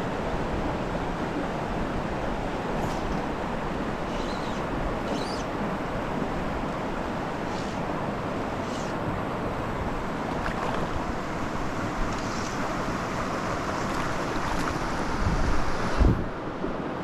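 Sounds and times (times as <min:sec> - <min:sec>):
stream rushing: 0:00.0 - 0:17.0.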